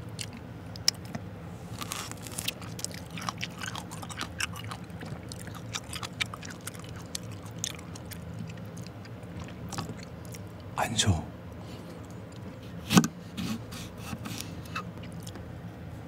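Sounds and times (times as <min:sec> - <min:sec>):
biting and chewing lemon: 0:00.0 - 0:10.7, 0:13.6 - 0:15.5.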